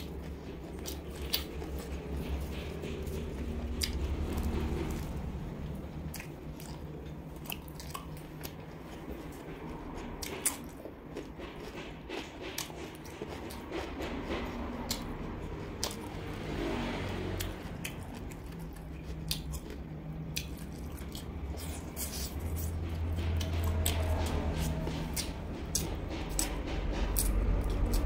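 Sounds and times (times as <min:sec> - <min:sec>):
biting and chewing crunchy food: 0:00.0 - 0:28.0.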